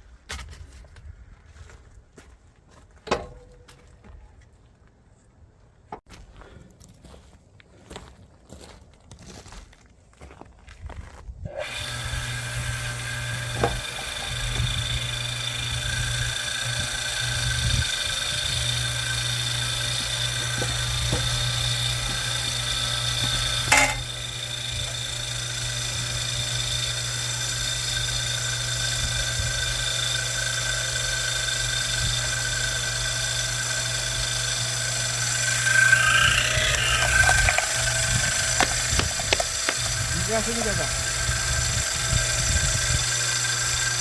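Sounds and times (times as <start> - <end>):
hydraulic log splitter motor hum: 11.5 - 44.0
wood crackling: 35.2 - 40.3.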